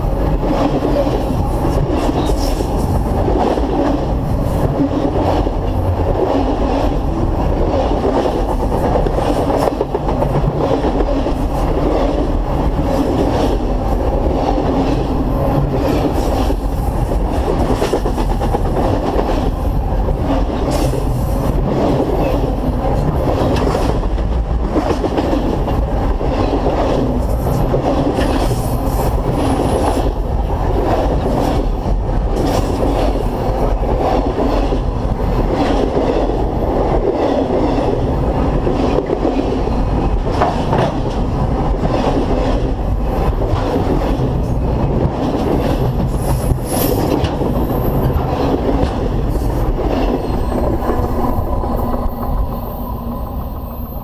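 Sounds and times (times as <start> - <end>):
steel wheels rumbling on rails: 0.0 - 54.0
high-pitched wheel squeals: 50.2 - 51.4.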